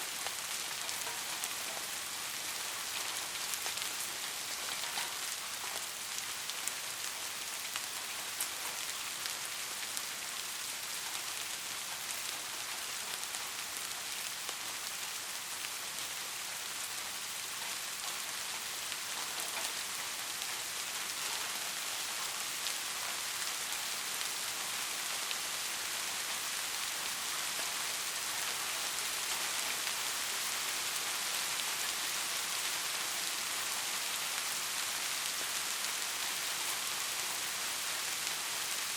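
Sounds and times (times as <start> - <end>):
heavy rain hissing: 0.0 - 38.9
raindrops ticking: 0.2 - 14.9.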